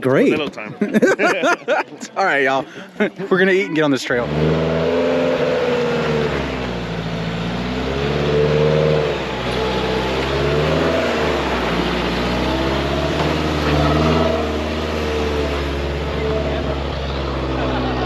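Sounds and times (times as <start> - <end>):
vehicle engine revving: 4.0 - 18.0.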